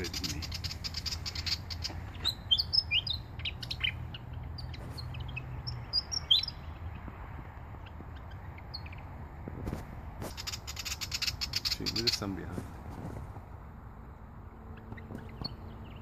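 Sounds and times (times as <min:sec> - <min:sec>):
bird sweeping chirps: 0:10.2 - 0:12.6.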